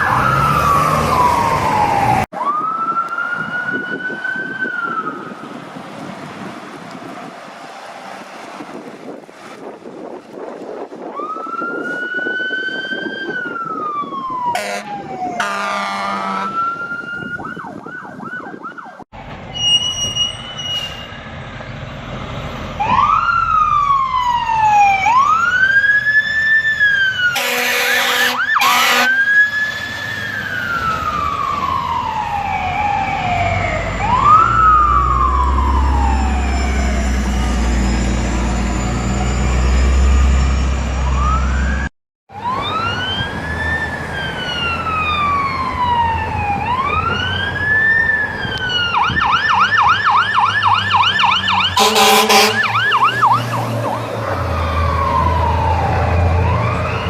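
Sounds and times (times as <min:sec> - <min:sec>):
emergency vehicle sirens wailing: 0:00.0 - 0:19.7, 0:22.0 - 0:57.0
loud horn blasts: 0:14.5 - 0:16.6, 0:27.3 - 0:29.3, 0:51.8 - 0:53.5.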